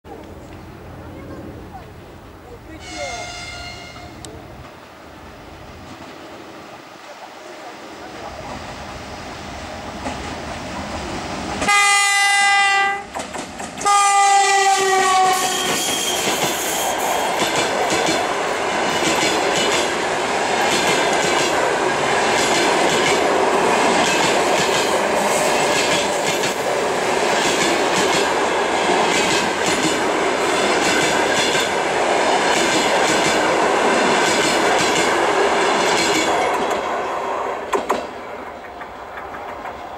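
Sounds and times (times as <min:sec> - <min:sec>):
train passing: 0:00.1 - 0:39.9
locomotive horn blasts: 0:02.8 - 0:04.2, 0:11.6 - 0:13.1, 0:13.8 - 0:16.2
wheels clacking on rail joints: 0:13.0 - 0:14.6, 0:15.3 - 0:31.8, 0:37.6 - 0:39.9.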